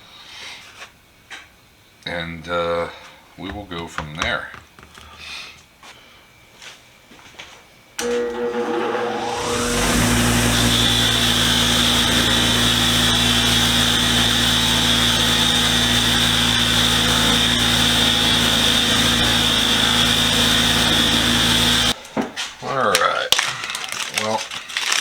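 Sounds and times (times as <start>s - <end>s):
wire wheel brushing metal: 8.0s - 22.0s.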